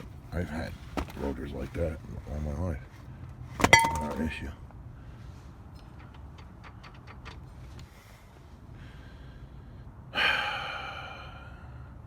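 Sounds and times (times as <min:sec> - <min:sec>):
sharp metallic clank: 0:03.6 - 0:04.5.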